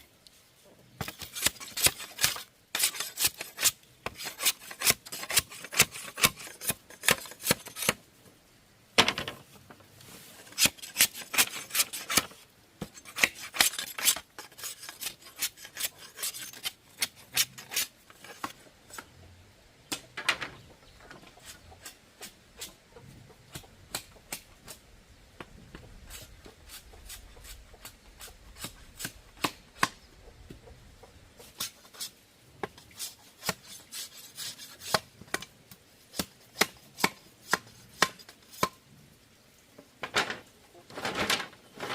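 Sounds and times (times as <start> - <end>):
bamboo being scraped by hand: 1.0 - 8.0, 10.0 - 19.1, 21.2 - 22.8, 25.7 - 30.0, 31.3 - 38.8.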